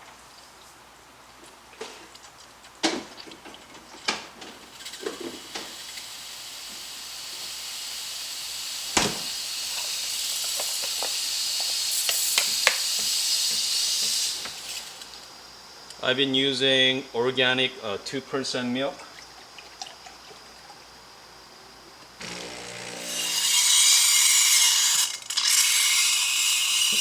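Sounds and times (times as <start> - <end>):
espresso steam wand hissing: 4.6 - 15.3, 22.2 - 27.0.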